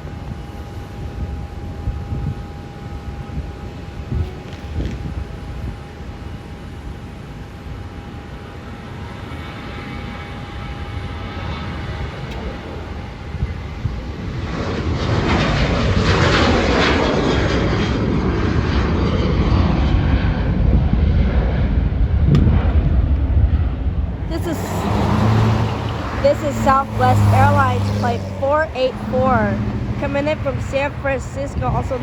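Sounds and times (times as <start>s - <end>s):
jet engine whine: 0.0s - 32.0s
rushing jet noise: 10.6s - 32.0s.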